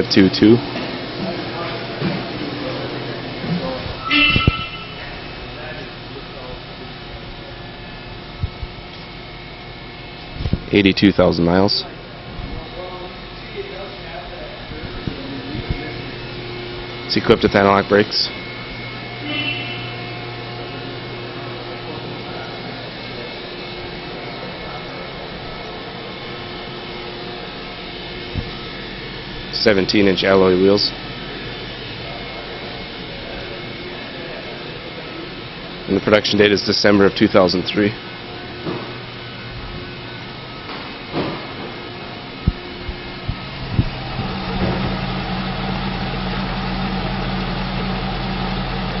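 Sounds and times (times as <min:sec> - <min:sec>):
machine whirring: 0:11.9 - 0:49.0
car engine starting and idling: 0:38.0 - 0:49.0.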